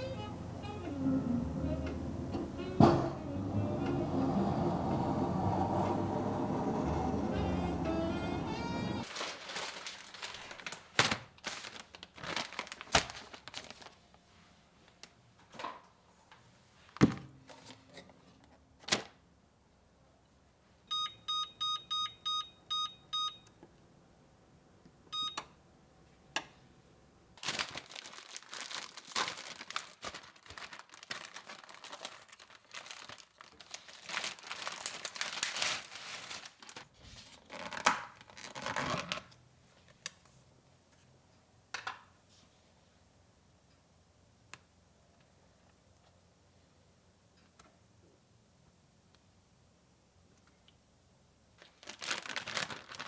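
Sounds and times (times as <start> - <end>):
packaging crinkling and tearing: 9.0 - 14.1, 27.4 - 39.4, 51.6 - 53.0
electronic keypad beeps: 20.9 - 23.5, 25.2 - 25.4.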